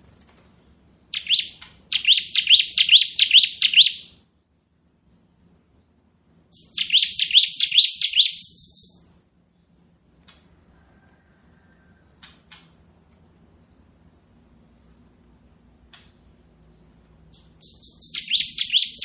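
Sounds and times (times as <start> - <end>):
bird singing trilled chirps: 1.0 - 4.1, 6.5 - 9.0, 17.3 - 19.0.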